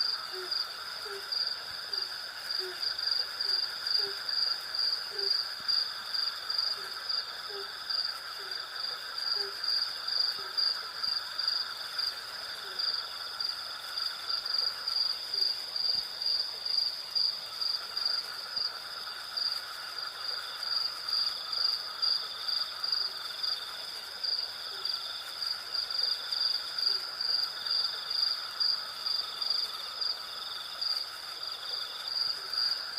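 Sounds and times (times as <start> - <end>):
crickets chirping: 0.0 - 32.9
insect trill: 0.0 - 32.9.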